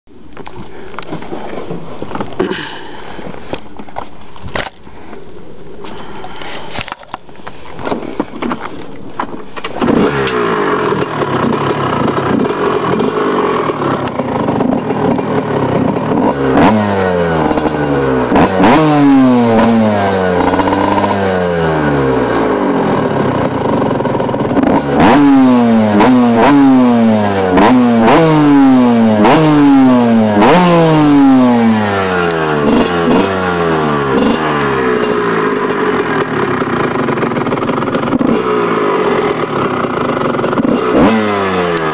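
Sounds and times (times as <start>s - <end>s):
motorcycle engine kicked over: 5.9s - 18.3s, 31.3s - 41.8s
two-stroke engine revving: 9.6s - 41.9s.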